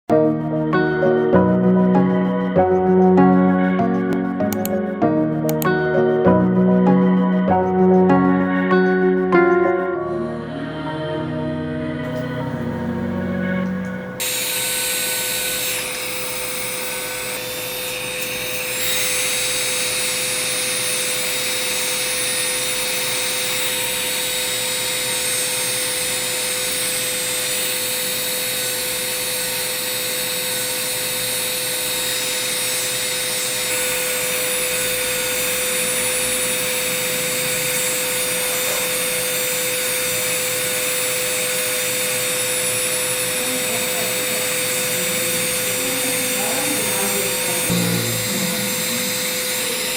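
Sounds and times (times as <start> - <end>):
electric foot file grinding skin: 0.8 - 9.9, 14.2 - 49.9.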